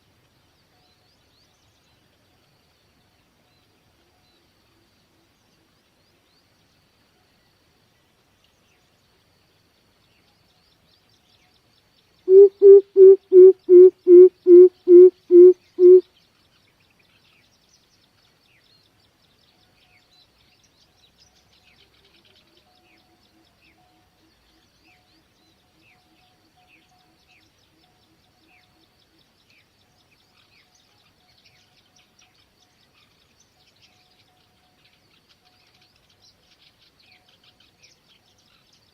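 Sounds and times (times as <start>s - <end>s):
bird deep hooting: 12.3s - 16.0s
faint low bird notes: 12.3s - 16.0s.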